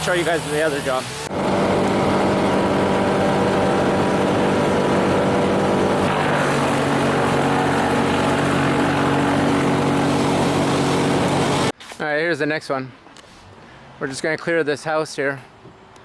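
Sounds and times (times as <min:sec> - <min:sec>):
drone propellers whirring: 0:00.0 - 0:11.7.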